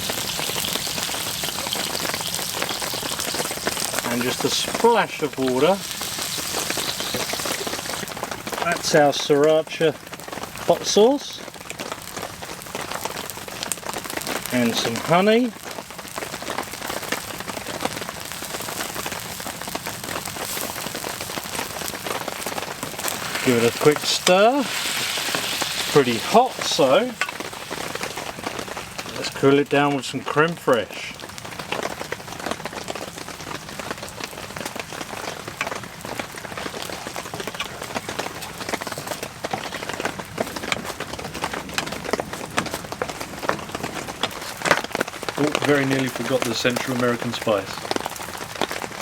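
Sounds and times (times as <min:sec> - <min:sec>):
heavy rain on a tent: 0:00.0 - 0:49.0.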